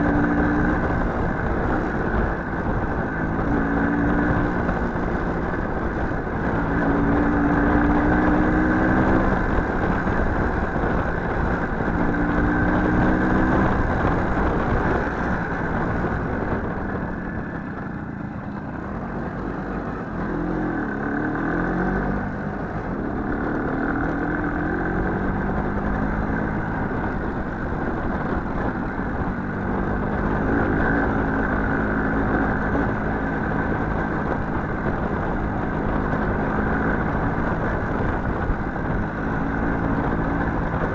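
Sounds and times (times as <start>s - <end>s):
riding noise rumble: 0.0s - 40.9s
small motorcycle engine revving: 19.7s - 27.0s.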